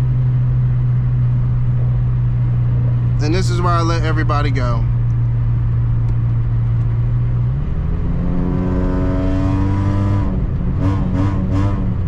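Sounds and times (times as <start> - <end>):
car engine and road noise: 0.0 - 12.0
engine revving bursts: 7.9 - 12.0.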